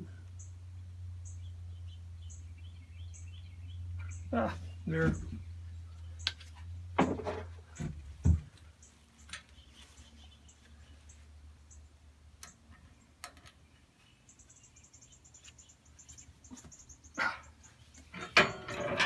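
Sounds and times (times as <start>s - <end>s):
hand tools clicking and knocking: 18.0s - 19.0s.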